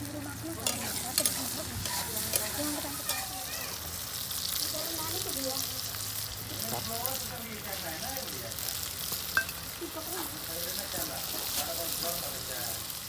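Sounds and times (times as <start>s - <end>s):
onions sizzling in hot oil: 0.0s - 13.0s
metal spatula stirring: 0.5s - 3.5s
spatula clicking against pan: 0.6s - 1.4s.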